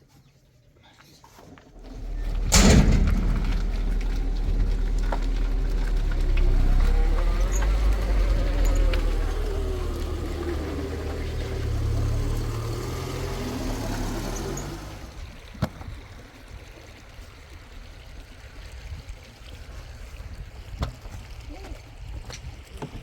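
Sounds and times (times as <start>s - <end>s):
vehicle engine humming: 1.7s - 15.4s.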